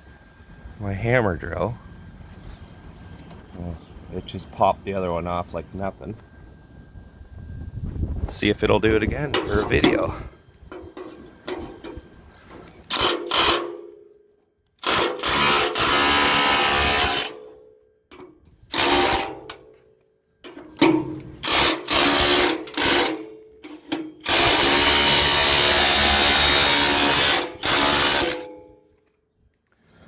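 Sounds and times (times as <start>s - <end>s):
hammer drill hammering metal: 12.9s - 13.9s, 14.8s - 17.6s, 18.7s - 19.6s, 20.8s - 23.4s, 24.2s - 28.7s.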